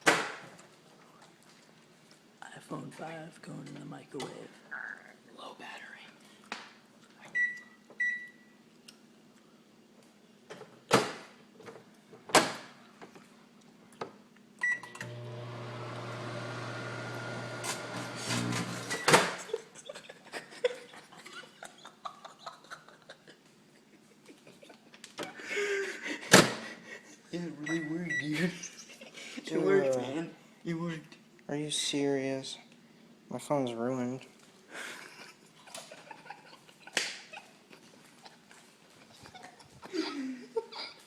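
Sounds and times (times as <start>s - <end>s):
microwave keypad beeps: 7.4s - 8.4s
microwave oven humming: 14.1s - 19.6s.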